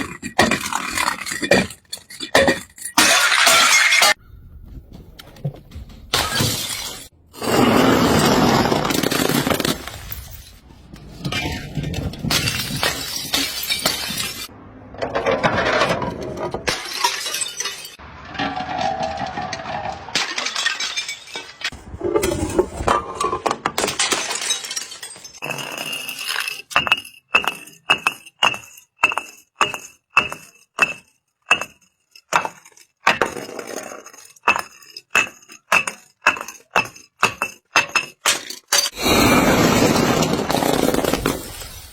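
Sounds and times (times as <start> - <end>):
glass bottle clinking down steps: 0.0 - 4.2, 11.3 - 14.5, 20.2 - 21.7, 23.0 - 39.0
glass bottles smashing on concrete: 0.0 - 4.2, 6.1 - 10.6, 11.3 - 14.5, 16.6 - 41.9.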